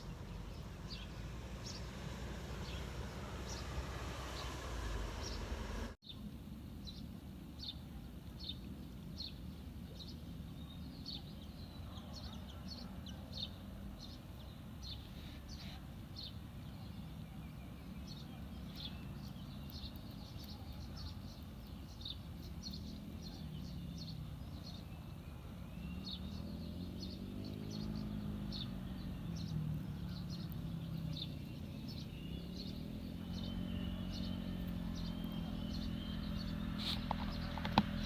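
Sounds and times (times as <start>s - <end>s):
passing motor vehicles: 0.0s - 6.0s, 17.9s - 38.0s.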